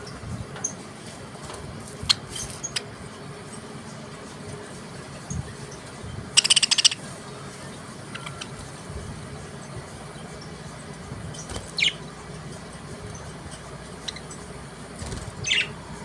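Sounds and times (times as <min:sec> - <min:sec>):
budgerigars chirping: 0:06.3 - 0:07.1, 0:08.1 - 0:08.6, 0:11.3 - 0:12.0, 0:15.4 - 0:15.8.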